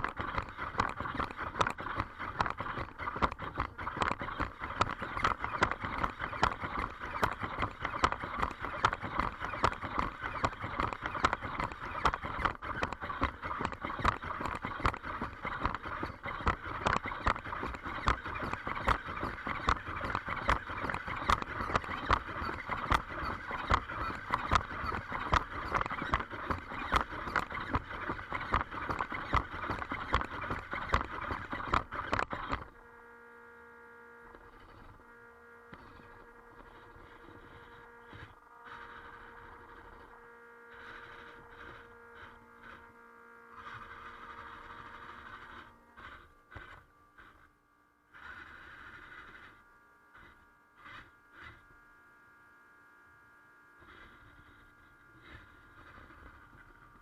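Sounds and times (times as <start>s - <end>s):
robot feet tapping: 0.0s - 32.7s
servo motors whining: 0.0s - 51.9s, 53.8s - 57.0s.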